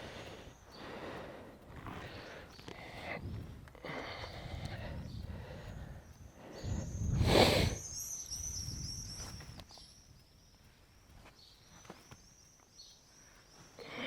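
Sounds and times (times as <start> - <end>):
songbird twittering: 4.2 - 14.0.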